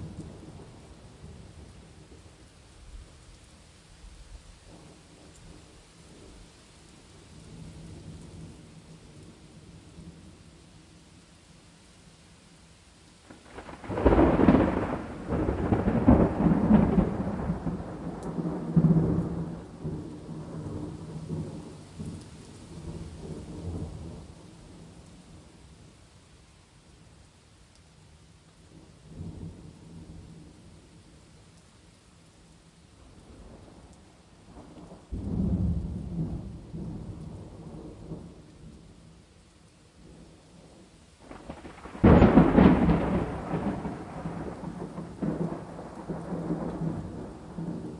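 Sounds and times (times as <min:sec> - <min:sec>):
rain: 0:00.0 - 0:47.9
thunder rumbling: 0:13.3 - 0:25.5, 0:34.5 - 0:38.9, 0:40.0 - 0:47.9.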